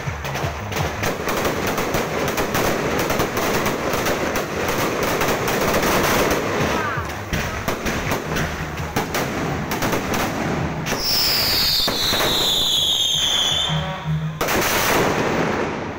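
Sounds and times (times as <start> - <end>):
fireworks crackling bangs: 0.0 - 15.9
loud firework burst: 0.7 - 15.9
falling whistle of firework shell: 11.0 - 15.2.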